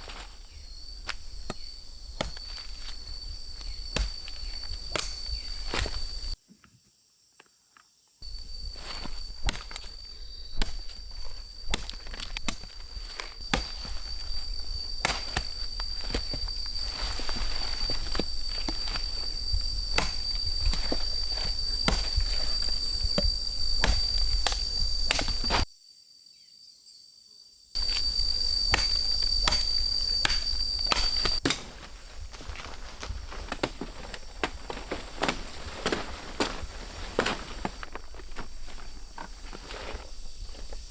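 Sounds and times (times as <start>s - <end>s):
crunches and snaps: 0.0s - 6.4s, 8.9s - 25.7s, 27.8s - 40.7s
footsteps: 0.0s - 6.4s, 8.2s - 25.7s, 27.8s - 40.9s
insect droning: 0.0s - 6.4s, 7.9s - 40.9s
rustling: 0.0s - 6.4s, 8.2s - 25.7s, 27.8s - 40.9s.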